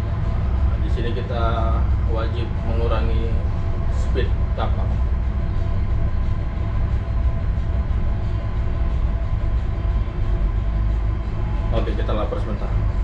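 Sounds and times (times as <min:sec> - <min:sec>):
ship engine droning: 0:00.0 - 0:13.0.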